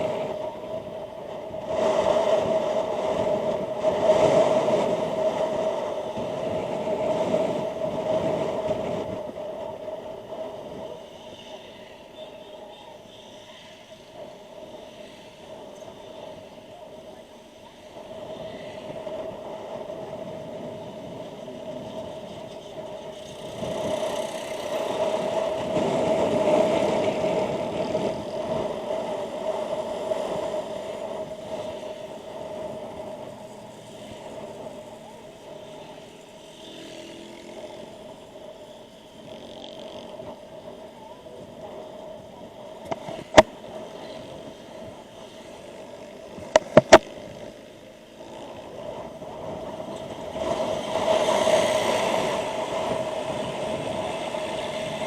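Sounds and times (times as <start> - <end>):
road noise from riding: 0.0 - 55.0
motorcycle engine riding: 13.9 - 55.0.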